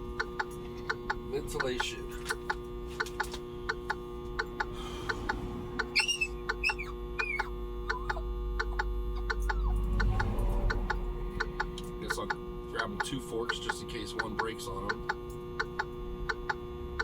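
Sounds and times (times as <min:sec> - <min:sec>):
microwave oven humming: 0:00.0 - 0:17.0
regular ticking: 0:00.0 - 0:17.0
high squeaks: 0:05.0 - 0:08.1.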